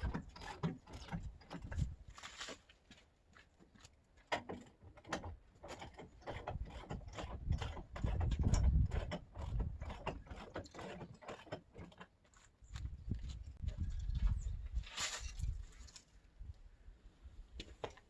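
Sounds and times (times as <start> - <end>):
jack clicking and clanking: 4.3 - 12.0.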